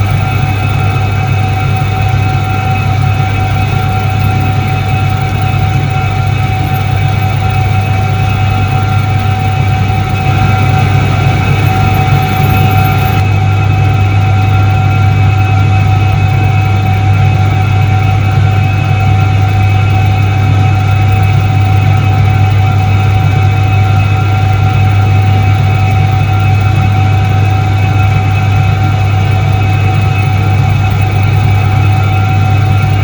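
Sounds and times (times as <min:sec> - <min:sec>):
washing machine motor hum: 0:00.0 - 0:33.0.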